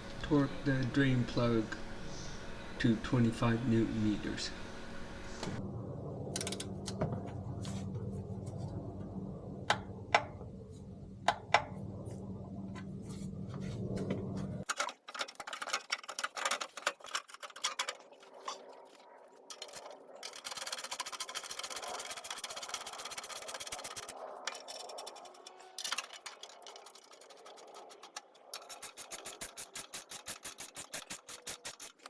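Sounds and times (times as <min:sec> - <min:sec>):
steady low hum: 0:00.0 - 0:14.6
torque wrench clicking: 0:25.8 - 0:32.0.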